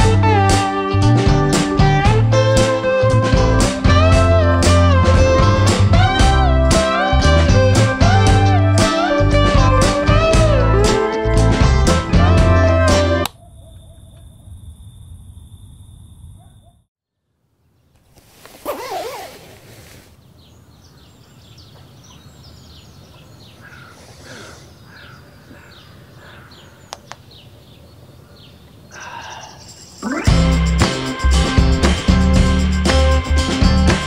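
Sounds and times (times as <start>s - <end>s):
small birds chirping: 17.6s - 30.2s
rustle: 17.8s - 24.7s.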